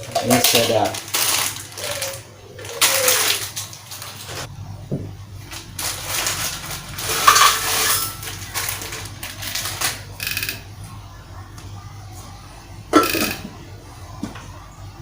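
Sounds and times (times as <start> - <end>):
dry noodles crunching in a blender: 0.0 - 4.5, 5.4 - 10.5.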